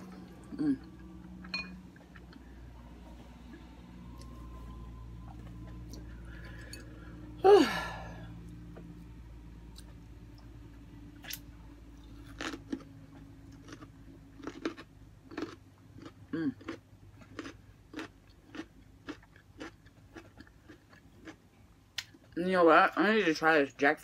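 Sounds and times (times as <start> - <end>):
person chewing crunchy food: 0.0 - 2.9, 11.2 - 22.4.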